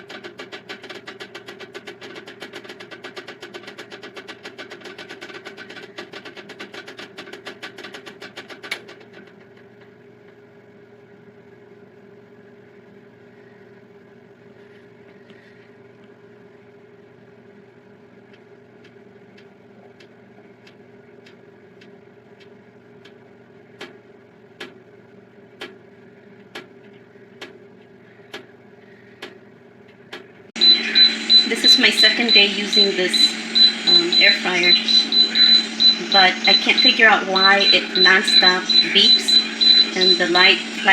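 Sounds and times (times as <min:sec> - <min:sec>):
convection fan humming: 0:00.0 - 0:40.9
regular clicking: 0:18.3 - 0:23.2.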